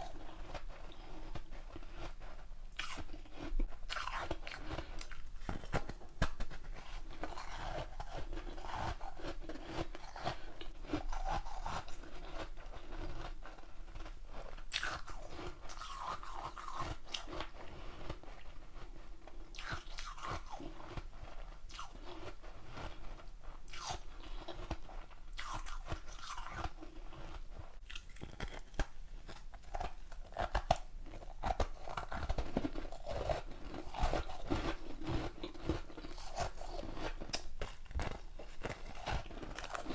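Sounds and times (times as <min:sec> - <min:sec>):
person crunching ice: 0:25.4 - 0:39.9.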